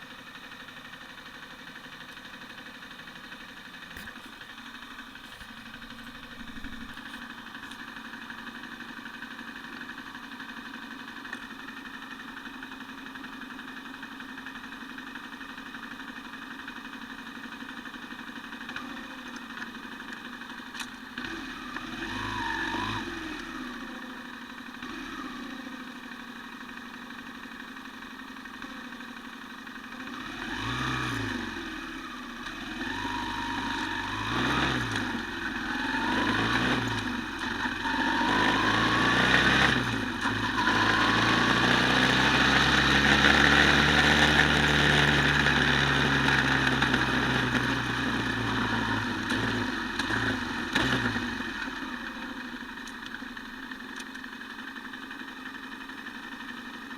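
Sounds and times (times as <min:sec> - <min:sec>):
quad bike engine revving: 0:03.9 - 0:07.8, 0:20.8 - 0:25.9, 0:30.0 - 0:52.9.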